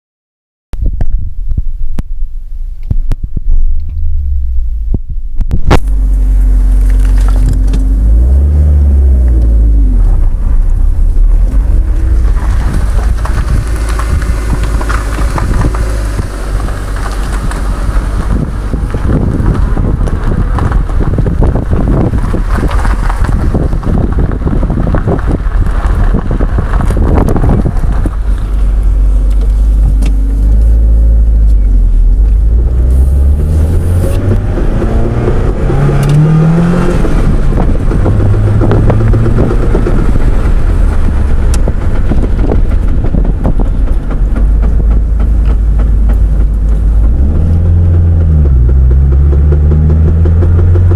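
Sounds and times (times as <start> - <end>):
car engine running: 1.3 - 50.9
rapid clunking and ticking: 37.9 - 50.7.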